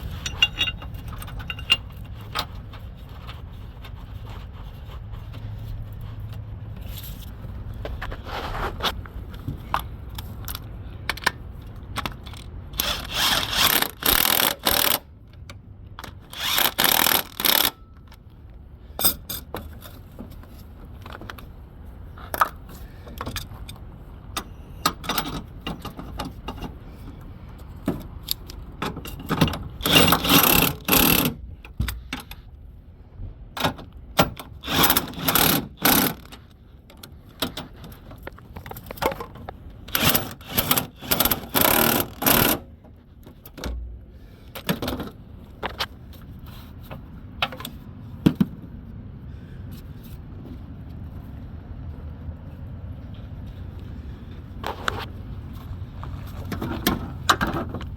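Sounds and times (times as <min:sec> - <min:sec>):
rasping hand tool noise: 0:12.8 - 0:15.0, 0:16.3 - 0:17.8, 0:29.8 - 0:31.4, 0:34.6 - 0:36.3, 0:39.9 - 0:42.6.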